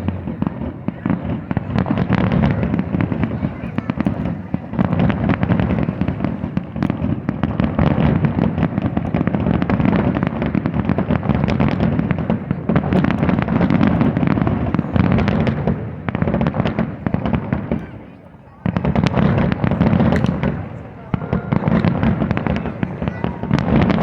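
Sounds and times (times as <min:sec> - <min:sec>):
low rumble: 0:00.0 - 0:03.4
fireworks bangs and crackles: 0:00.0 - 0:24.0.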